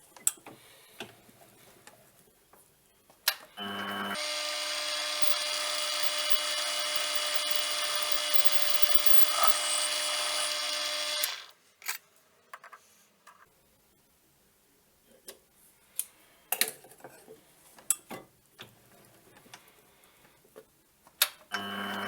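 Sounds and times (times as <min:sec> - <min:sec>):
metal lathe motor whine: 0:03.6 - 0:11.5.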